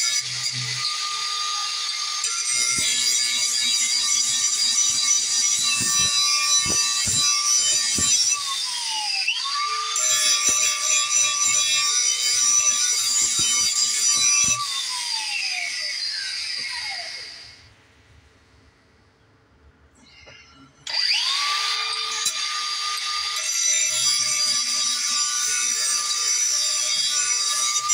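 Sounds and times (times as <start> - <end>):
electric grinder sharpening metal: 0.0 - 8.9, 9.5 - 14.8, 20.9 - 27.9
grinder spinning down: 0.0 - 17.7.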